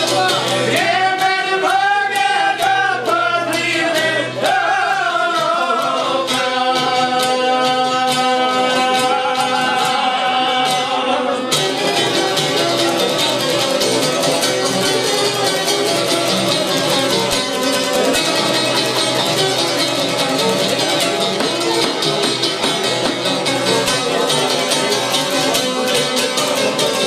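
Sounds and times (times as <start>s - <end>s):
plucked string accompaniment: 0.0s - 27.0s
man singing: 0.1s - 11.6s
steady beat: 15.4s - 27.0s.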